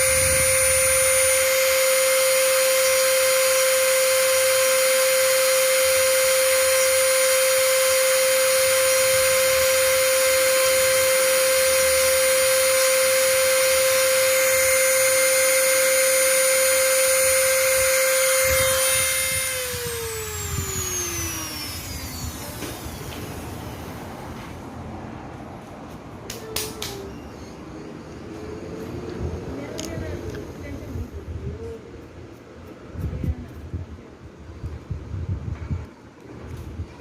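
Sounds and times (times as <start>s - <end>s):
small electric motor whining: 0.0s - 24.1s.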